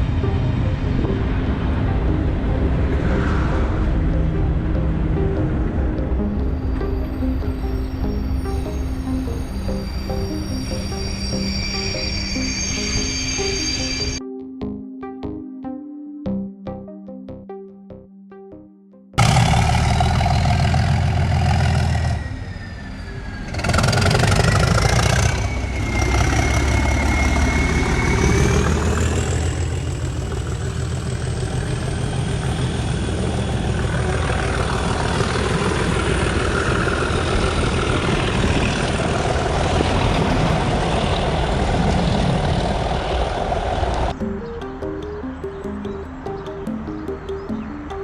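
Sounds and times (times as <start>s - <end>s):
diesel locomotive engine working hard: 0.0s - 14.2s, 19.2s - 45.2s
high rising whistle: 6.5s - 14.2s, 21.6s - 29.6s.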